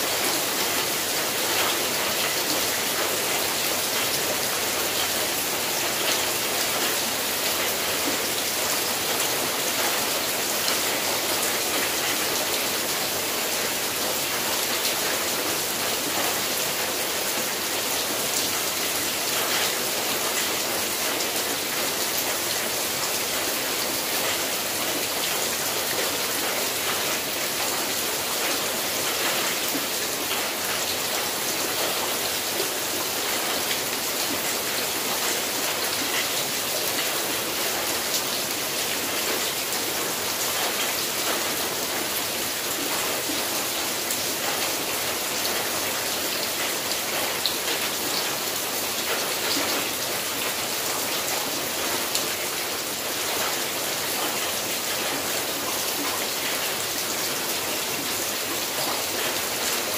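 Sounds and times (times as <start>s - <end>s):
rain on a metal roof: 0.0s - 59.9s.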